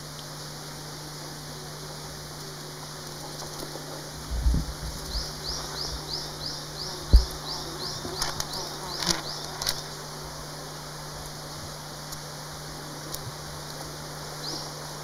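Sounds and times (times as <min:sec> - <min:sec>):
bird chirping: 0:05.0 - 0:09.8
low thumps: 0:07.0 - 0:08.5.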